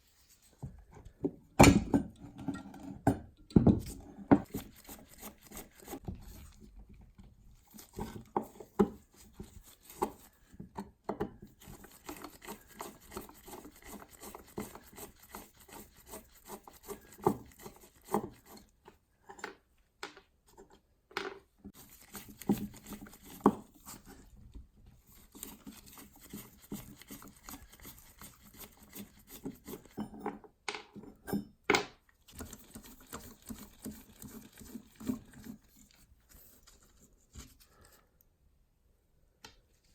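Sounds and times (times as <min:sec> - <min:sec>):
scraping and rubbing: 0:03.8 - 0:10.6, 0:11.5 - 0:18.7, 0:21.7 - 0:24.4, 0:25.0 - 0:30.1, 0:32.3 - 0:38.0.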